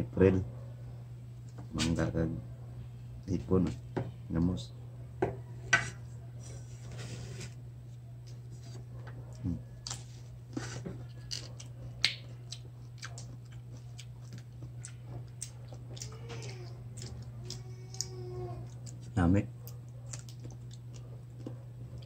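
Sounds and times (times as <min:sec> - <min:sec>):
steady low hum: 0:00.0 - 0:22.0
mango being bitten and chewed: 0:09.3 - 0:22.0.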